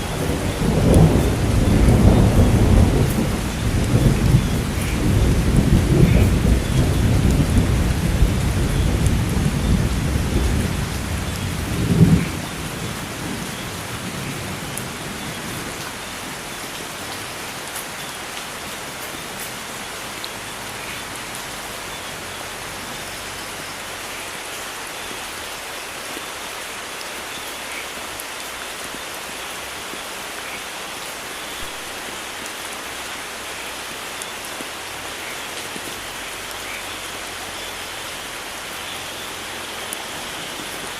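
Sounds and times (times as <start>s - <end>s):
thunder rumbling and cracking: 0.0s - 16.8s
heavy rain hiss: 0.0s - 40.9s.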